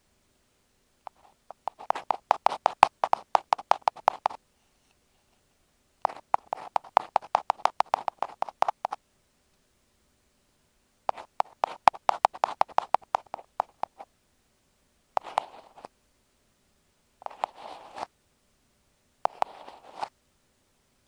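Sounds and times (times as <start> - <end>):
ear pick scraping microphone: 1.1 - 4.4, 6.1 - 9.0, 11.1 - 14.0, 15.2 - 15.9, 17.3 - 18.1, 19.3 - 20.1.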